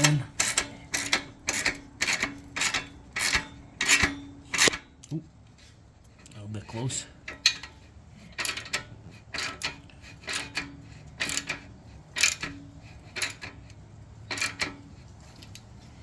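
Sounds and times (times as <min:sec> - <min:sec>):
hand tool rasping click on metal clamp: 0:00.0 - 0:04.8.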